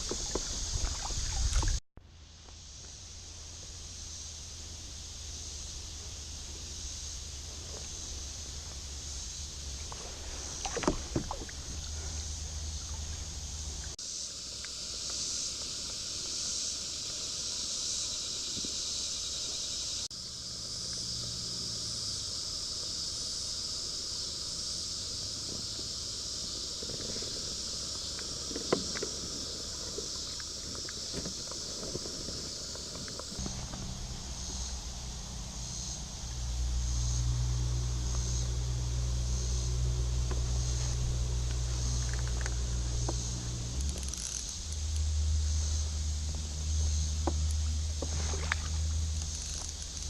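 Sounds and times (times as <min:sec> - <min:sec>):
paddle strokes in water: 0:00.0 - 0:01.8, 0:09.6 - 0:14.0, 0:25.4 - 0:34.0, 0:46.2 - 0:50.0
steady high hiss: 0:00.0 - 0:50.0.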